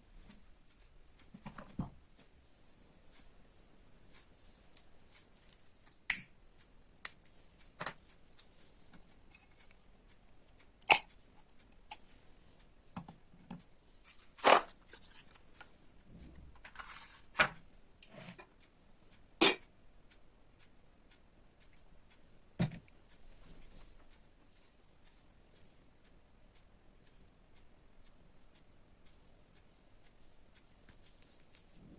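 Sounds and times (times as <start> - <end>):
clicks and taps of objects handled: 0.2 - 2.3, 7.0 - 12.2, 12.9 - 18.6.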